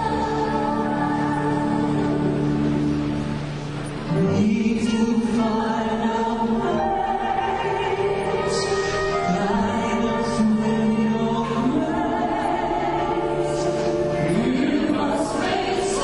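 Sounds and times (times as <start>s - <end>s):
choir and orchestral backing: 0.0s - 16.0s
operatic pop ballad singing: 4.1s - 16.0s.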